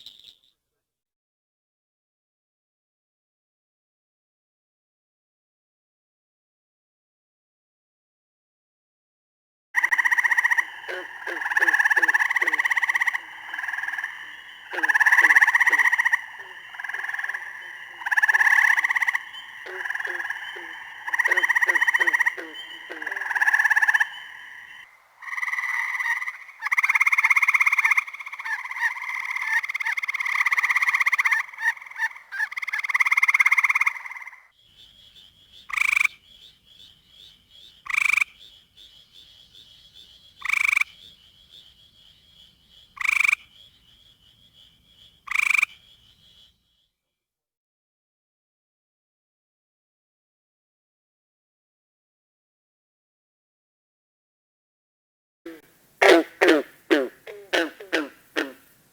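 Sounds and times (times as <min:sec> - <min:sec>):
low quick pulsing frog call: 0:09.8 - 0:46.6, 0:55.5 - 0:58.7
frogs trilling in chorus: 0:09.8 - 0:46.9, 0:55.5 - 0:58.8.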